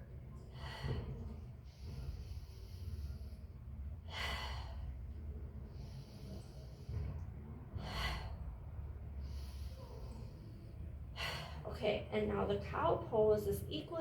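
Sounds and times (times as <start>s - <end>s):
woman breathing deeply: 0.5s - 11.7s.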